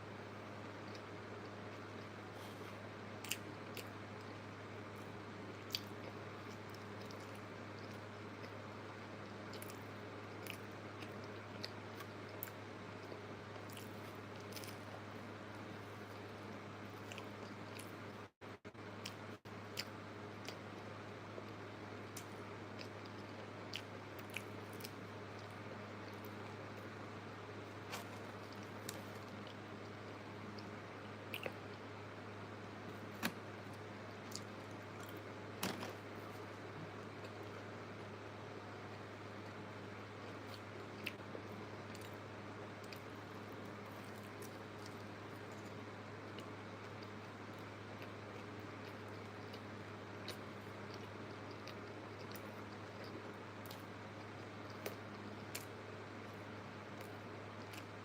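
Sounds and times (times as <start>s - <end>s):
faint low hum: 0.0s - 58.0s
chewing and biting: 42.8s - 55.8s.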